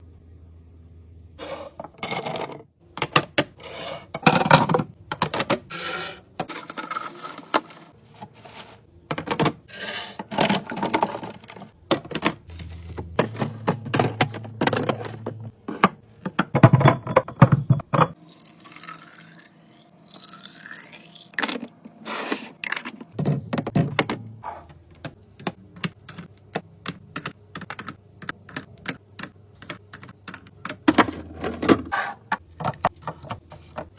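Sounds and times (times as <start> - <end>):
containers knocking and clattering: 4.2 - 5.7, 9.1 - 18.2, 22.8 - 33.9.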